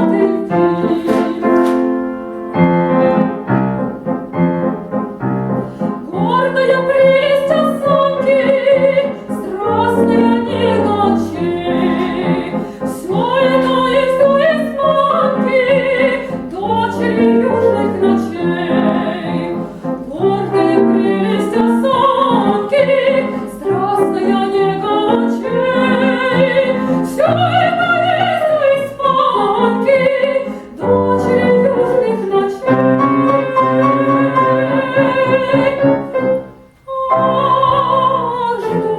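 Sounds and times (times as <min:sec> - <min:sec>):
woman singing opera: 0:00.0 - 0:01.9, 0:06.0 - 0:38.9
grand piano: 0:00.0 - 0:38.9.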